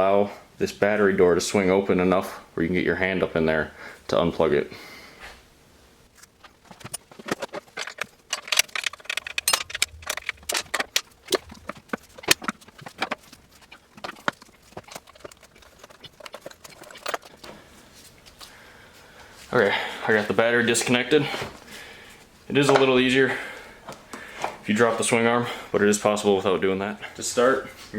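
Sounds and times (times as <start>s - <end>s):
hand tools and metal parts clattering: 6.2s - 18.5s, 19.4s - 25.2s.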